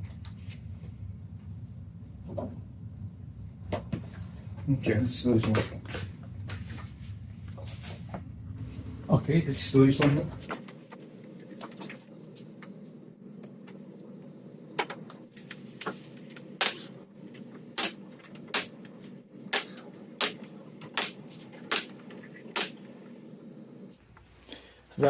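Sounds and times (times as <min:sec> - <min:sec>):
steady low hum: 0:00.0 - 0:25.0
nail gun shots: 0:16.6 - 0:16.9, 0:17.8 - 0:18.7, 0:19.5 - 0:21.9, 0:22.6 - 0:22.8.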